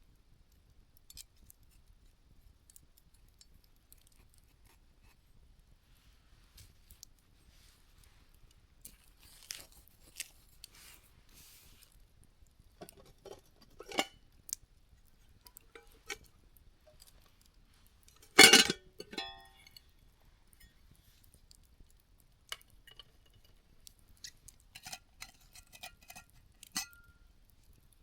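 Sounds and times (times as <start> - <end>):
soft hissing of fire: 0.0 - 28.0
campfire crackling and popping: 0.1 - 4.8, 11.7 - 28.0.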